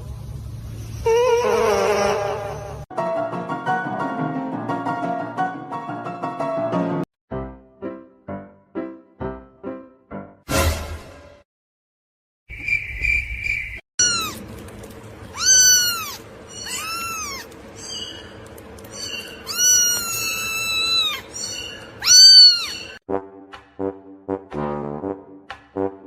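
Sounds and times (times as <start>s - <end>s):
music: 2.9s - 11.4s, 23.1s - 26.0s
cat meowing: 14.0s - 14.4s, 15.3s - 17.6s, 19.0s - 23.0s.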